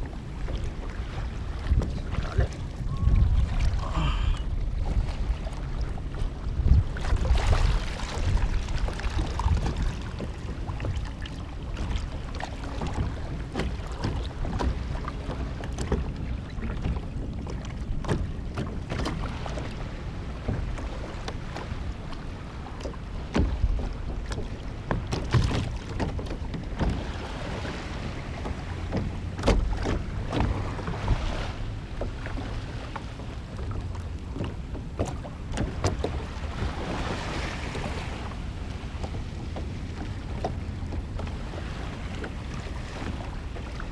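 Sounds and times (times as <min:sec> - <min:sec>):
water sloshing: 0:00.0 - 0:43.9
wind rumble on microphone: 0:00.0 - 0:43.9
knocks against kayak hull: 0:22.8 - 0:27.1, 0:28.0 - 0:31.4, 0:33.6 - 0:36.8.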